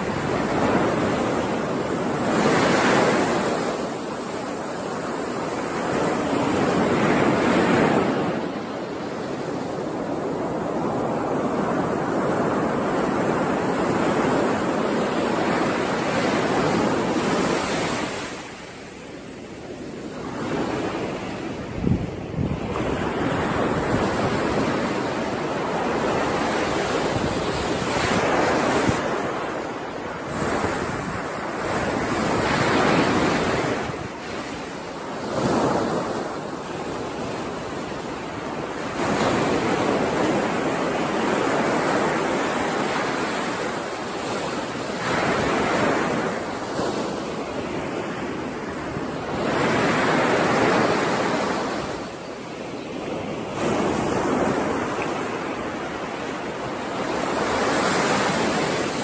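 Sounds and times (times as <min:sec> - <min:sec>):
ocean waves breaking on shore: 0:00.0 - 0:59.0
wind on microphone: 0:00.0 - 0:59.0.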